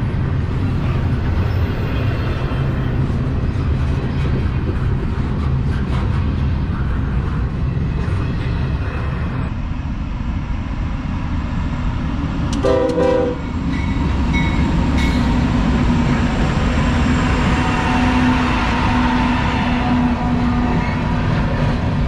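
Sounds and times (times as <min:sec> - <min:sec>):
freight train rumbling: 0:00.0 - 0:22.0
train horn blast: 0:12.6 - 0:13.5.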